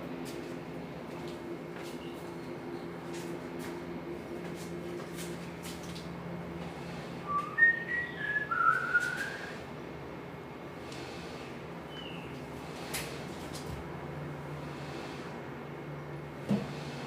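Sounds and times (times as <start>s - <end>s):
person whistling: 7.3s - 9.6s.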